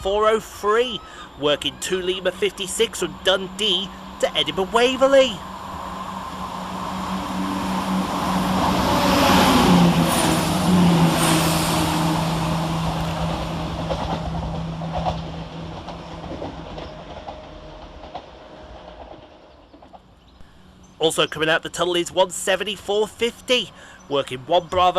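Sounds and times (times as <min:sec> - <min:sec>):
diesel train engine: 0:00.0 - 0:24.9
wheels clicking over rail joints: 0:09.8 - 0:24.9.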